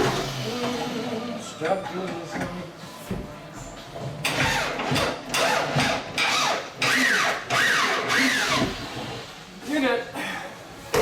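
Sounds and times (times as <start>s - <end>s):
power tool motor bursts: 5.4s - 8.9s.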